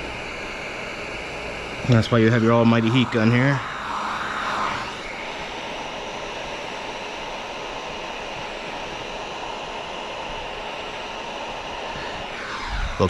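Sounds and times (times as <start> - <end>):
heat gun blowing air: 2.0 - 5.7.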